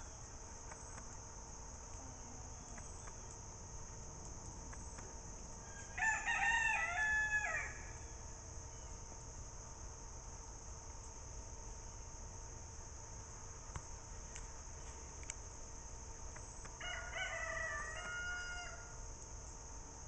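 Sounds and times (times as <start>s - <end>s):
insects chirring: 0.0s - 20.0s
bird crowing call: 5.6s - 8.0s, 16.8s - 19.0s.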